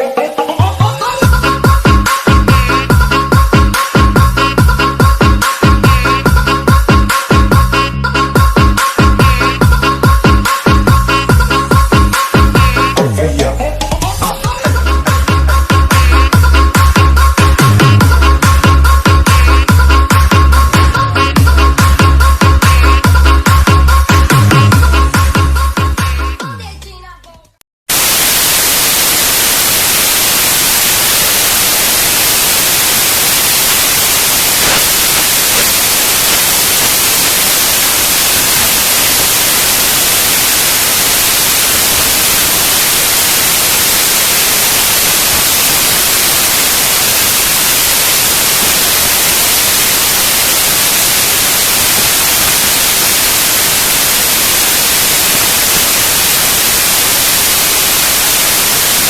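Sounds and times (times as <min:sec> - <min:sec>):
steady static hiss: 0:27.9 - 0:59.0.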